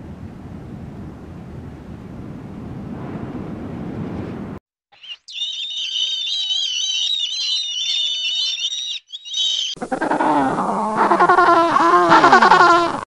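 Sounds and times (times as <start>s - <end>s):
high-pitched animal squealing: 5.0s - 13.0s
lower-pitched animal crying: 5.0s - 13.0s.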